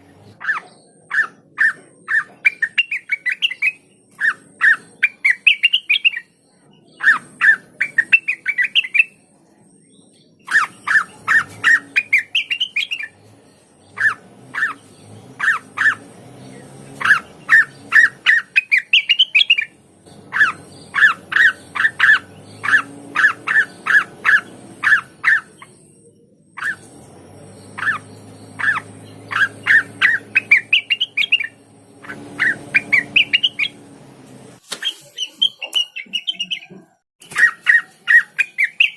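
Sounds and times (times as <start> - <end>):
bird singing quick sharp chirps: 10.4 - 25.9, 26.6 - 33.9, 34.6 - 38.9.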